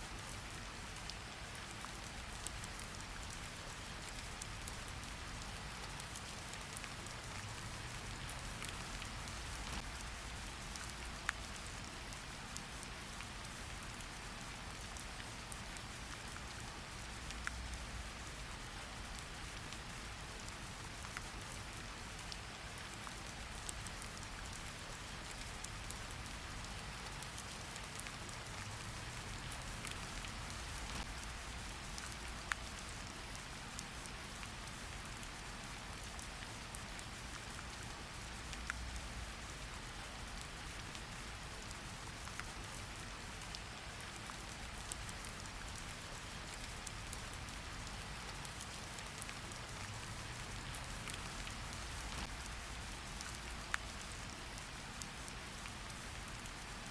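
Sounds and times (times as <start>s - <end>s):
steady rain hiss: 0.0s - 56.9s.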